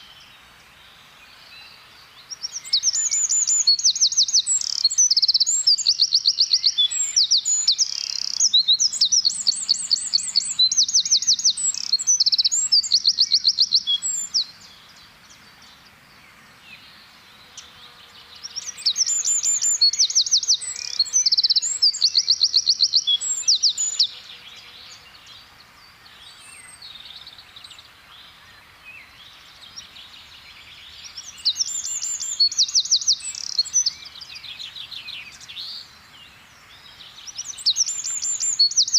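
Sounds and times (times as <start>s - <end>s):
bird singing high trills: 1.5s - 15.9s, 16.7s - 25.3s, 30.8s - 36.0s, 37.0s - 38.9s.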